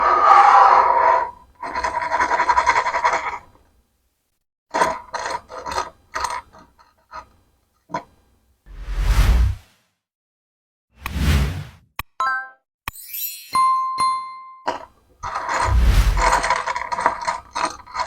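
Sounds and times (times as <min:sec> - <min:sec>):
plastic parts rattling and scraping: 0:01.6 - 0:03.7, 0:04.7 - 0:08.1, 0:14.7 - 0:18.0
low whoosh: 0:08.7 - 0:09.6, 0:15.6 - 0:16.5
plastic pieces clicking together: 0:14.7 - 0:18.0.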